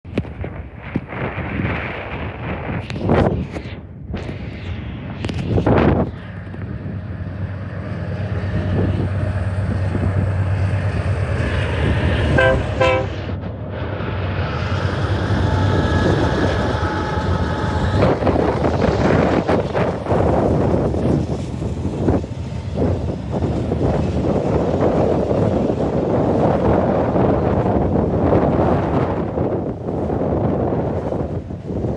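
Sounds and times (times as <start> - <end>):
train engine drone: 0.5 - 31.9
train rumbling and clattering past: 6.2 - 31.9
train horn toots: 12.2 - 13.4.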